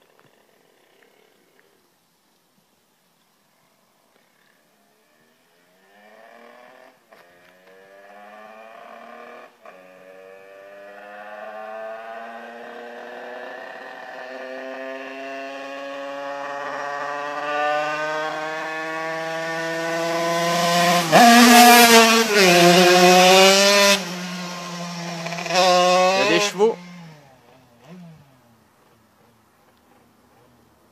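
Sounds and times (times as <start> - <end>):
two-stroke motorcycle engine revving: 5.8 - 28.6.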